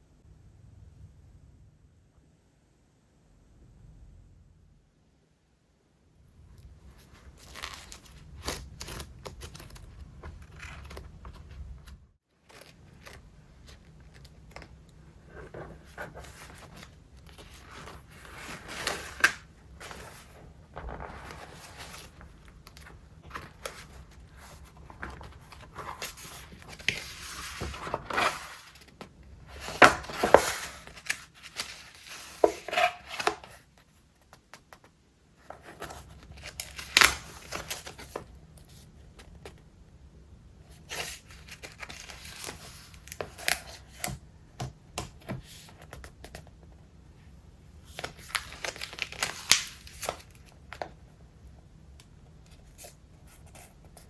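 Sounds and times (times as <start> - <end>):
paper pages rustling and crinkling: 7.0 - 33.6, 40.9 - 44.1, 47.9 - 50.9.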